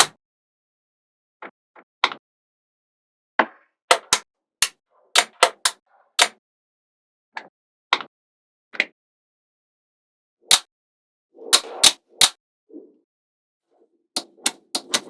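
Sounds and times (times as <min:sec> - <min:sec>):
magnetic balls clicking: 0:03.9 - 0:04.2, 0:14.2 - 0:15.0.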